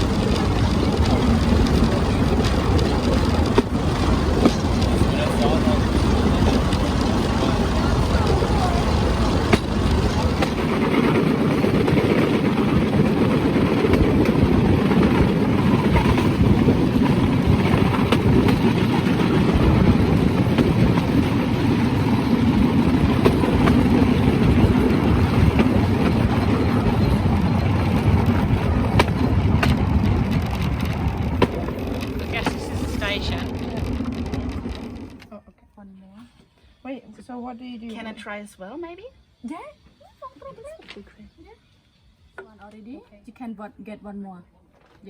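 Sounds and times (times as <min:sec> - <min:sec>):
platform rumbling on track: 0:00.0 - 0:35.3.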